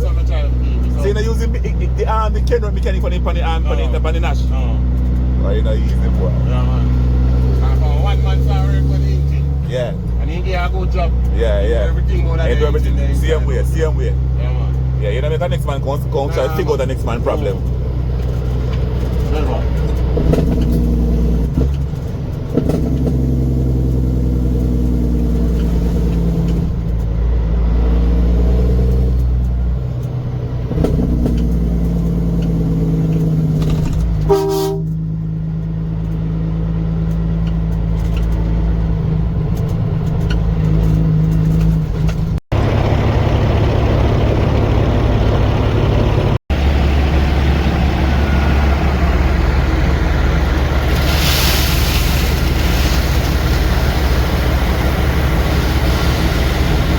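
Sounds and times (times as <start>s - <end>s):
heavy truck engines droning: 0.0s - 56.9s
rough engine rumble: 0.0s - 56.9s
truck horn blast: 34.3s - 35.1s.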